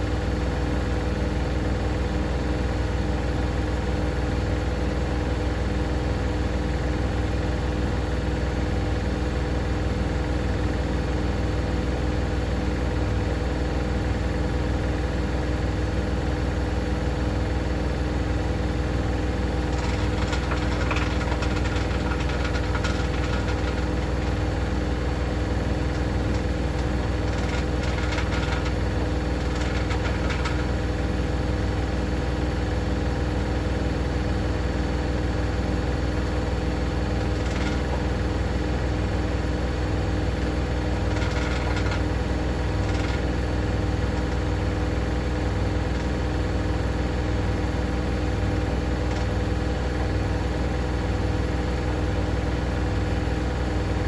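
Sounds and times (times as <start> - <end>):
washing machine spinning: 0.0 - 54.0
rattle in washing machine: 18.8 - 32.4, 35.8 - 52.8.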